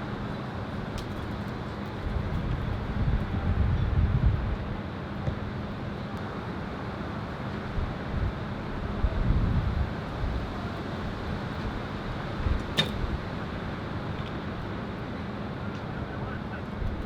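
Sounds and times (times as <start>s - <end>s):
wind buffeting microphone: 0.8s - 5.8s, 7.7s - 15.0s, 16.7s - 17.0s
sharp click: 12.6s - 13.1s.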